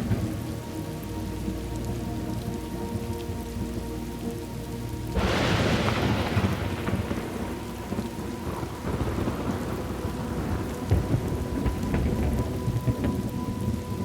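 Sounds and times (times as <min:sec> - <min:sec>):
rain falling: 0:00.0 - 0:14.0
thunderclap rumbling: 0:05.1 - 0:14.0.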